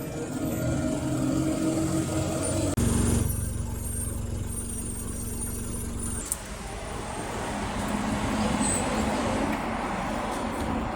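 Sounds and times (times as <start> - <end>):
vehicle engine running: 0.0 - 8.0
vehicle passing rush: 6.3 - 10.9.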